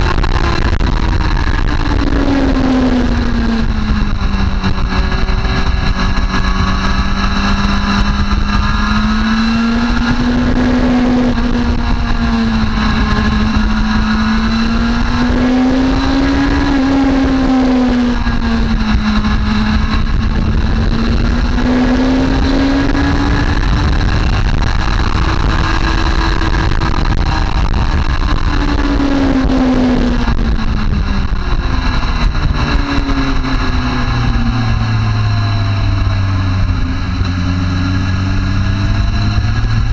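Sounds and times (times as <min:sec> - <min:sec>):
motorcycle engine accelerating: 0:00.0 - 0:39.9
wind noise: 0:00.0 - 0:39.9.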